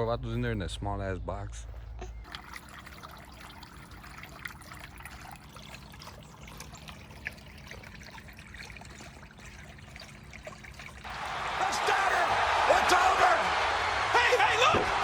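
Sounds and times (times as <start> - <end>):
water trickling and dripping: 2.0 - 12.2.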